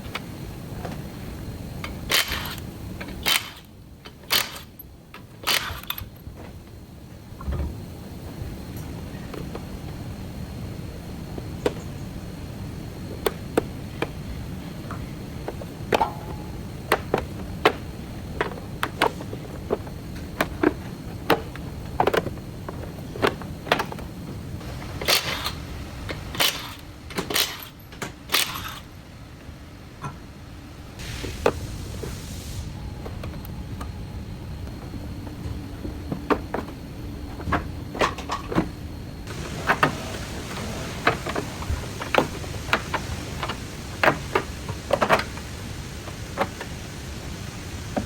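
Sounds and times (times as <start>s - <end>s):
steady low hum: 0.0s - 48.0s
sharp clicks and knocks: 14.8s - 24.4s
hissing bursts: 31.0s - 32.9s, 39.3s - 48.0s.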